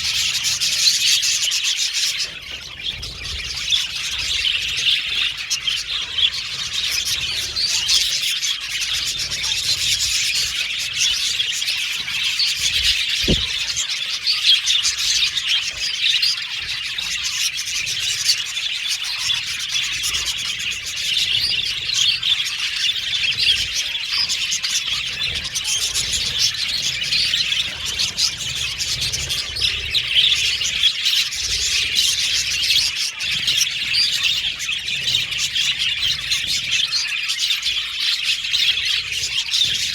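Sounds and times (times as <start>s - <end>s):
budgerigars chattering: 0.0s - 39.9s
brief low thump: 13.2s - 13.6s.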